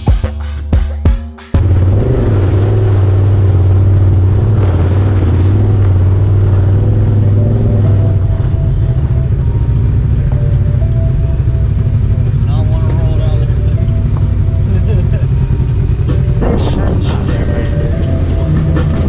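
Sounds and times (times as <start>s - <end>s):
drum-driven music: 0.0s - 1.7s, 8.4s - 19.0s
off-road vehicle engine droning: 1.6s - 19.0s.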